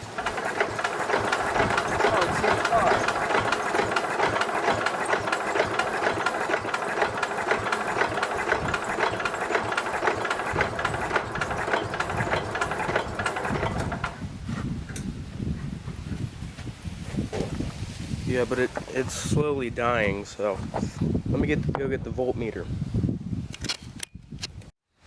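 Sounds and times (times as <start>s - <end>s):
engine cranking by starter: 0.0s - 14.3s.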